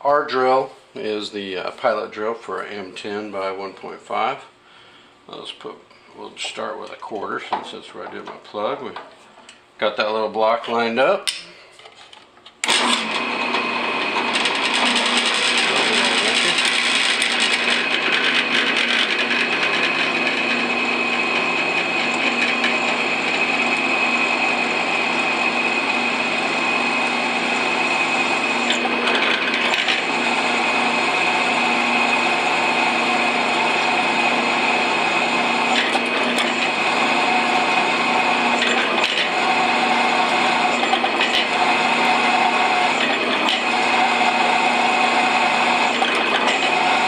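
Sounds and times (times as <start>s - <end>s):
electric drill whining: 12.6s - 47.0s.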